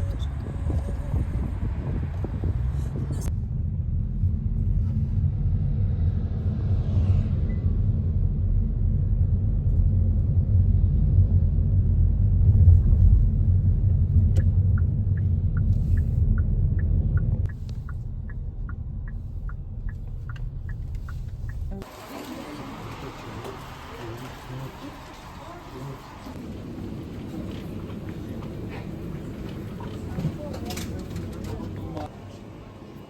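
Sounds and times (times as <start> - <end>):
road rumble inside car: 0.0 - 32.4
turn signal ticking: 13.9 - 21.9.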